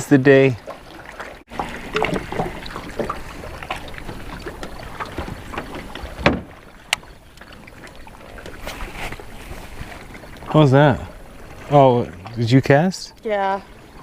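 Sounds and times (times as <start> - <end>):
water lapping against hull: 0.0 - 14.0.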